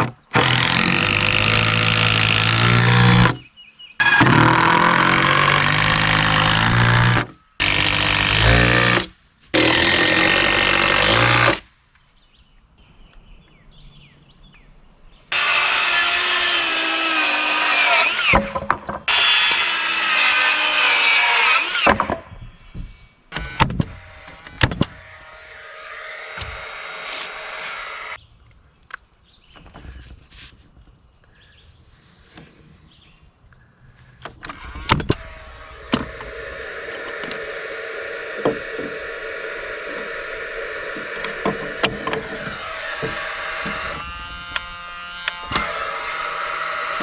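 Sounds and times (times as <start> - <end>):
power tools running: 0.4 - 3.4, 4.0 - 11.6, 15.3 - 18.4, 19.1 - 22.0, 23.3 - 28.2, 34.4 - 47.0.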